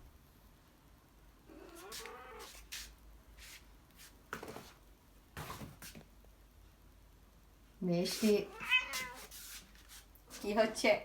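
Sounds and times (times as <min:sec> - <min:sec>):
cat meowing: 0:01.5 - 0:02.6, 0:08.3 - 0:09.3.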